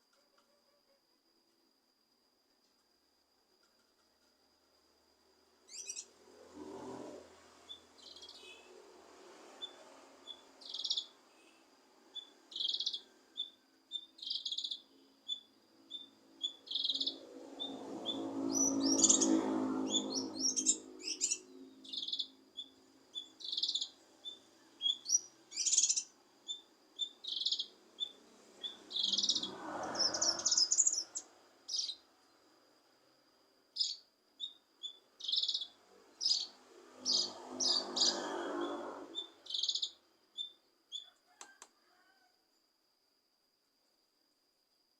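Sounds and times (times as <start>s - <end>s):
faint high whine: 0.0s - 44.9s
bird chirping: 5.7s - 6.1s, 7.6s - 8.7s, 9.6s - 32.1s, 33.7s - 41.2s.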